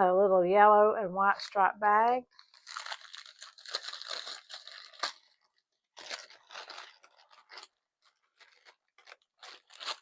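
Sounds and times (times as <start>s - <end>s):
gift bag crinkling: 2.3s - 10.0s.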